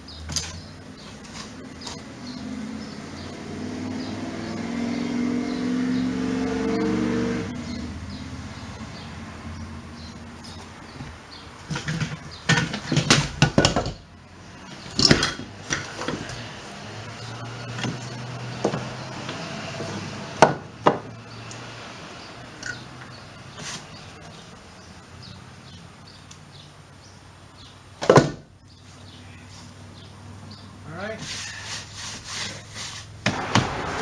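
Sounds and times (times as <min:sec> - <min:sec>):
hammer striking wood: 0:20.4 - 0:21.1, 0:33.2 - 0:34.0.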